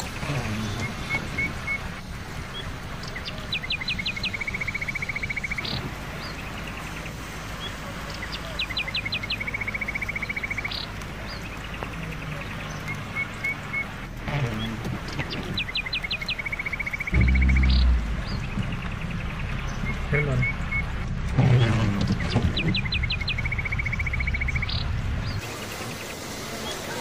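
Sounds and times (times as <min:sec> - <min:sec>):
songbird singing: 0:00.0 - 0:26.9
bird chirps: 0:15.2 - 0:20.9, 0:22.2 - 0:25.4
low background rumble: 0:17.1 - 0:21.4.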